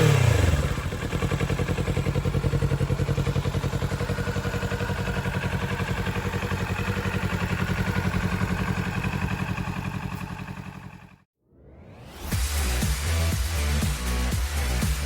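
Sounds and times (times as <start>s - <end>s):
motorcycle engine idling: 0.0s - 11.3s.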